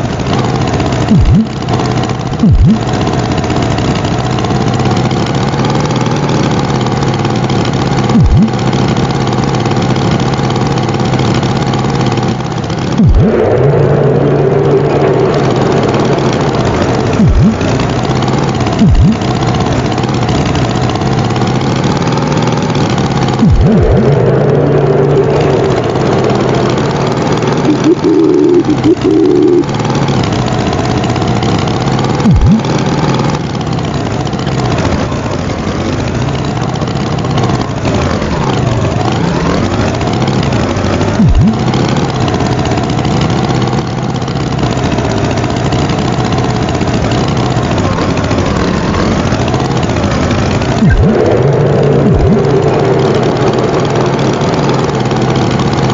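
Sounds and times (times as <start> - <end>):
cartoon tractor engine running: 0.0 - 55.9
held tones: 1.0 - 3.2, 8.0 - 8.9, 12.1 - 21.9, 22.6 - 31.3, 32.0 - 33.3, 41.2 - 41.9, 50.7 - 53.5
short low thumps: 1.1 - 1.5, 2.4 - 2.8, 8.2 - 8.5, 13.0 - 13.6, 17.2 - 17.6, 18.8 - 19.2, 23.4 - 24.3, 32.3 - 32.6, 41.2 - 41.6, 52.1 - 52.4.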